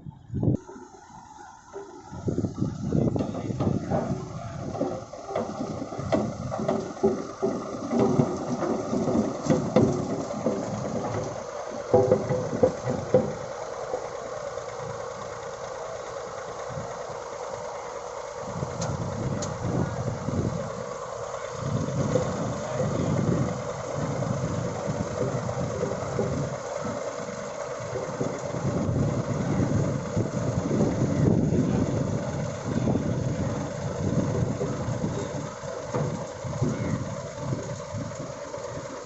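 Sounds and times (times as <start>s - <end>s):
road roller engine running: 0.0s - 39.0s.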